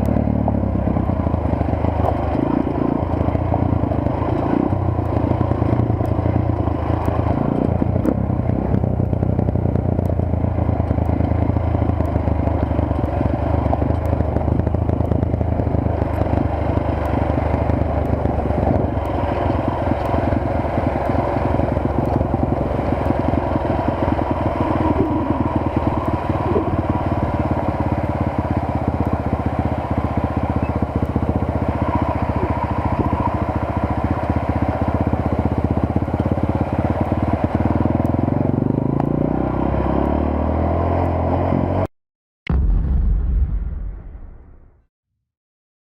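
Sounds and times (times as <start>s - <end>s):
motorcycle engine running: 0.0s - 41.9s
road and wind rushing noise: 0.0s - 41.9s.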